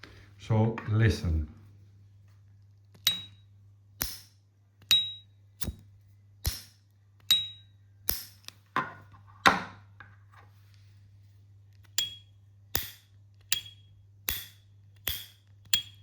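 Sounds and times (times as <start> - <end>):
high metallic ping: 3.1 - 5.8, 6.4 - 8.4, 12.0 - 16.0.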